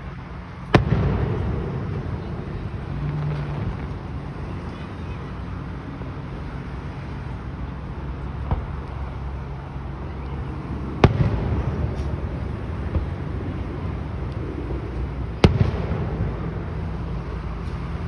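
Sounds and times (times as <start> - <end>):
steady low rumble: 0.0 - 18.0
faint firework bang: 0.7 - 3.9.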